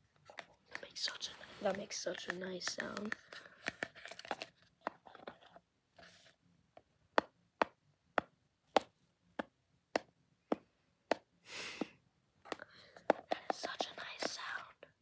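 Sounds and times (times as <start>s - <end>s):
sharp taps on small hard object: 1.7s - 5.0s.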